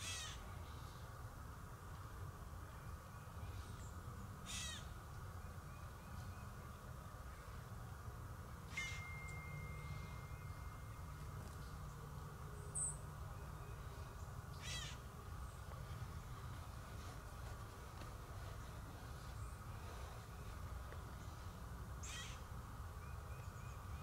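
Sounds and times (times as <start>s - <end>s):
high bird calls: 0.0s - 1.0s, 3.6s - 5.0s, 8.6s - 16.5s, 22.0s - 24.0s
steady low rumble: 0.0s - 24.0s
thin steady tone: 5.3s - 24.0s.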